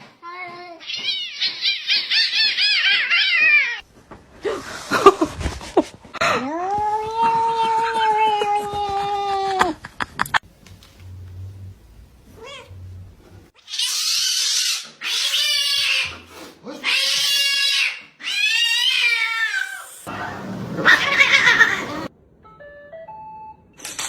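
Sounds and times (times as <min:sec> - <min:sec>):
cat meowing loudly: 0:20.8 - 0:22.1.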